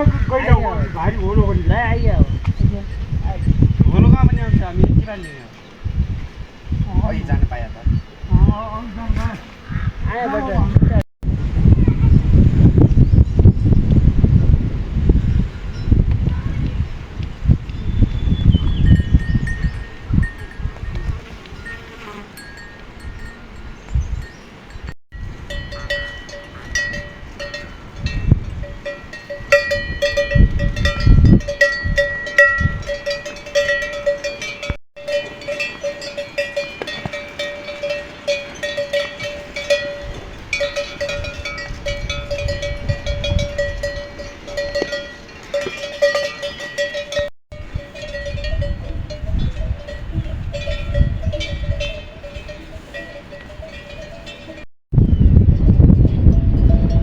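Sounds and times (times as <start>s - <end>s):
metal livestock bells clanking: 2.9s - 5.6s, 18.8s - 23.6s, 24.2s - 54.7s, 55.8s - 57.0s.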